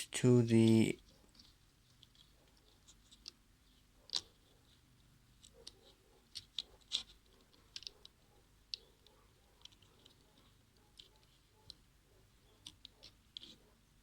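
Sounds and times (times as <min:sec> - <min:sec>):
plastic toy truck clicks and taps: 0:04.0 - 0:04.5, 0:05.4 - 0:11.8, 0:12.5 - 0:13.7.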